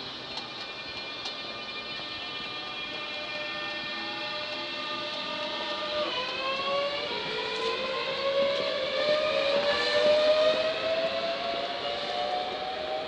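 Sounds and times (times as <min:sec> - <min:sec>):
train traction motors whining: 0:00.0 - 0:13.0.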